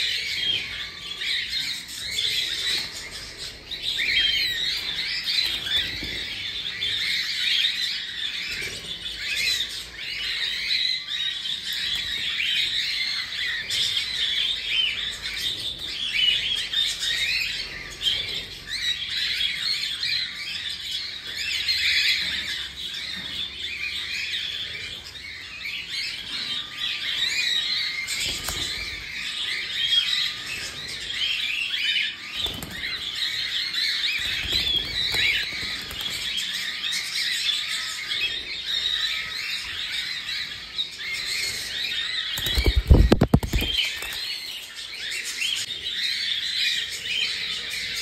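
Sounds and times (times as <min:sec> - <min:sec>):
cockatiels chirping and squawking: 0:00.0 - 0:48.0.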